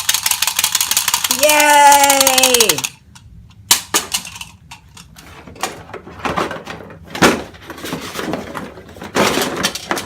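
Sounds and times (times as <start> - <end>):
items knocking: 3.7 - 10.0
rummaging through a box: 5.2 - 10.0.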